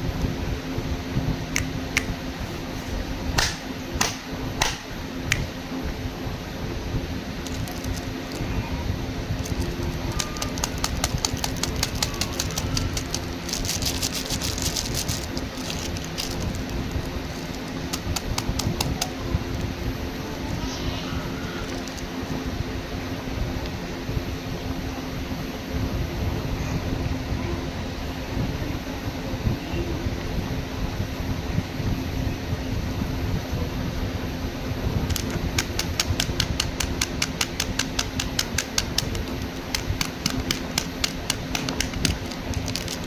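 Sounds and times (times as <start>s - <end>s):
steady low hum: 0.0s - 43.0s
plastic crinkling: 7.4s - 8.4s, 9.4s - 19.0s, 21.6s - 22.0s, 36.6s - 43.0s
plastic packaging clicking: 7.4s - 8.4s, 9.4s - 19.1s, 21.6s - 22.0s, 35.1s - 43.0s.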